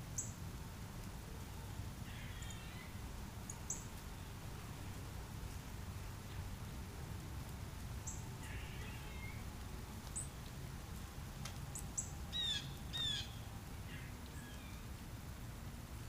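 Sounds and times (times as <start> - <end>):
low outdoor rumble: 0.0 - 16.0
birds chirping: 11.7 - 14.8
harsh bird calls: 12.3 - 14.8.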